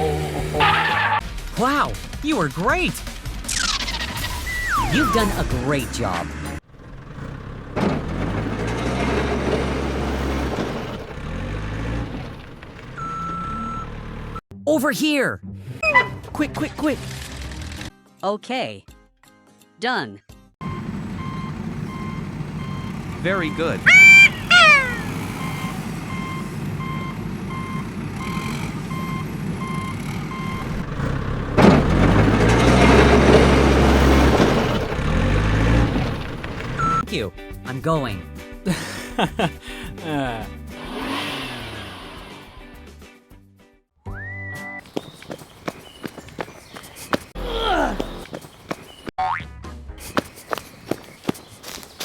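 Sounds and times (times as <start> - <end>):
heavy vehicle engine running: 5.3 - 14.4, 20.6 - 37.0
truck reversing alarm beeping: 12.9 - 14.4, 15.8 - 16.2, 20.6 - 32.0, 36.7 - 37.1.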